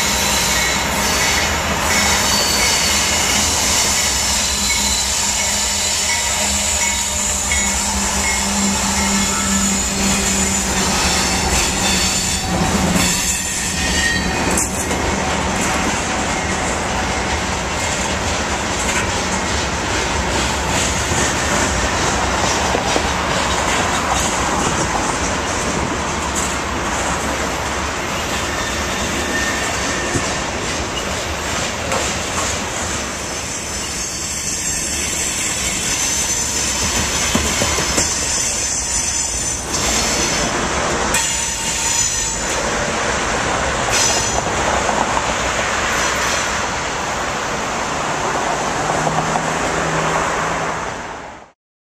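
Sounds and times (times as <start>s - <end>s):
high wheel squeal: 0.0s - 14.9s, 28.1s - 30.4s, 33.2s - 40.5s
rhythmic clicking over rail joints: 0.0s - 28.9s, 29.6s - 46.7s
diesel locomotive engine hum: 0.0s - 34.0s
train wheels on rails: 0.0s - 51.0s.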